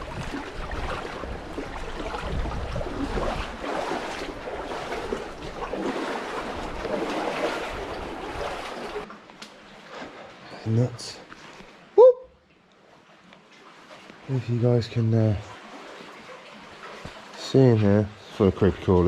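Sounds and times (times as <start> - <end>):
wind buffeting microphone: 0.0 - 5.6
water sloshing around kayak: 0.0 - 10.4, 12.6 - 18.4.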